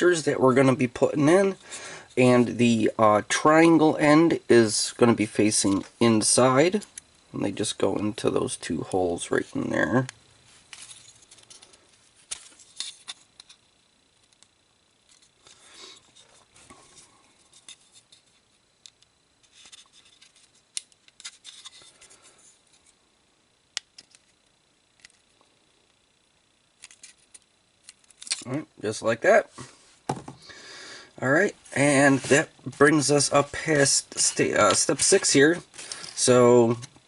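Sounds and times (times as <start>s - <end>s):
small plastic parts clicking: 26.8s - 28.5s.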